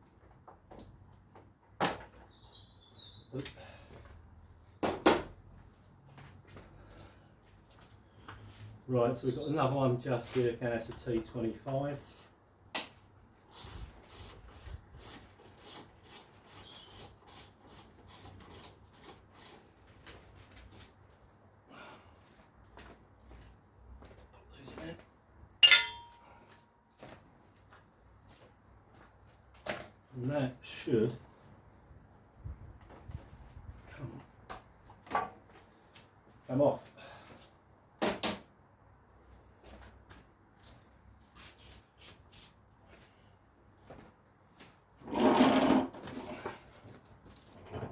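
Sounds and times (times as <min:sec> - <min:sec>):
screwdriver rasping strokes: 0:13.5 - 0:19.6.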